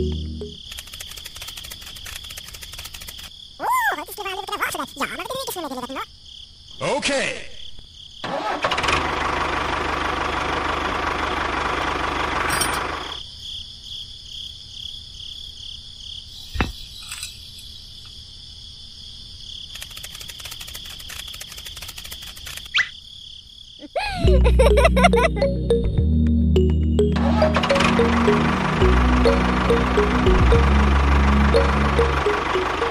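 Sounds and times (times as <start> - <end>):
music: 0.0 - 0.6, 24.2 - 32.9
tractor engine running: 0.0 - 3.3, 8.4 - 13.1, 26.6 - 32.9
crickets chirping: 0.0 - 8.3, 12.6 - 24.3.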